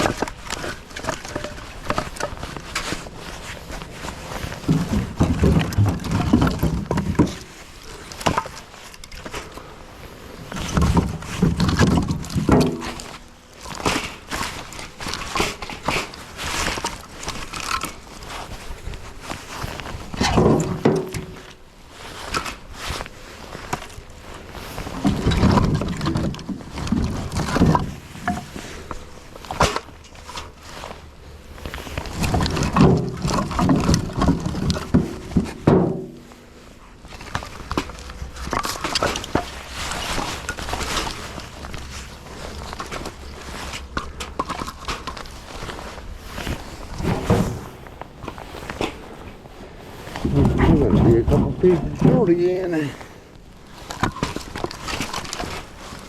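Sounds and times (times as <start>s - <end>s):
firewood knocking and clattering: 0.0s - 9.5s, 10.4s - 21.6s, 23.6s - 31.0s, 32.0s - 53.1s
heavy wooden clunks: 0.0s - 9.5s, 10.5s - 18.4s, 20.1s - 21.5s, 32.0s - 36.6s, 43.9s - 53.2s.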